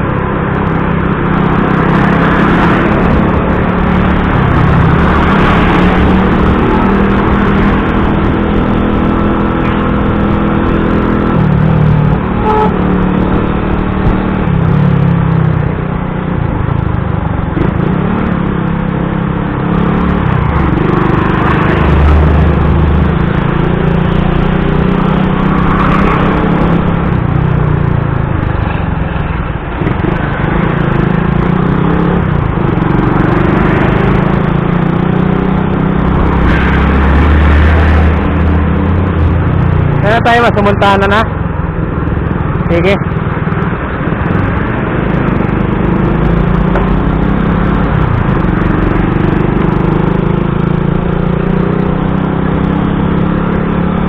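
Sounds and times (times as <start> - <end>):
vehicle engines in heavy traffic: 0.0 - 54.0.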